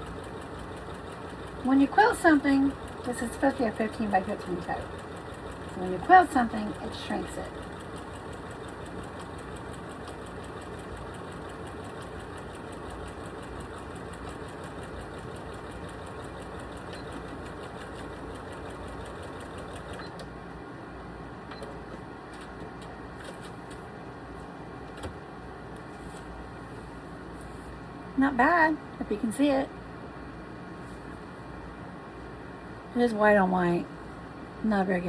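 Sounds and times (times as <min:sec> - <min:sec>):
sewing machine stitching: 0:00.0 - 0:20.3.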